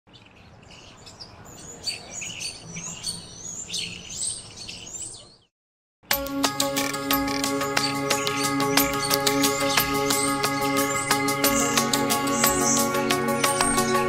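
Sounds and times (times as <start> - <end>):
birds chirping: 0.1 - 5.5, 6.4 - 14.0
music: 6.1 - 14.0.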